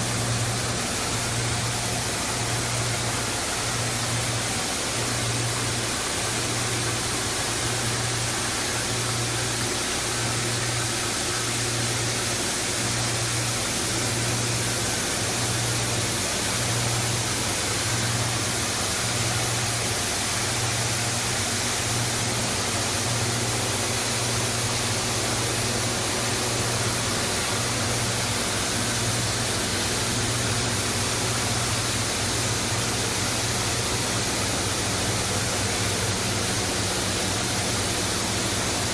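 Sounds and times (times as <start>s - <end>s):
rushing water: 0.0s - 38.9s.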